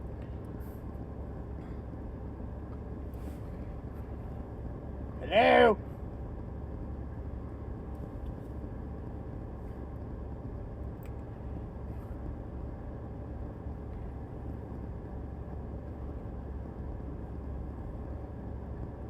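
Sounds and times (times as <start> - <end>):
steady low rumble: 0.0 - 19.0
faint click: 11.0 - 11.2.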